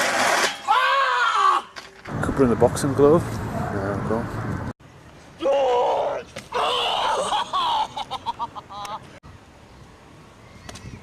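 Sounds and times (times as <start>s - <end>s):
people yelling: 0.7s - 1.8s, 5.4s - 7.4s
people laughing: 7.1s - 9.0s.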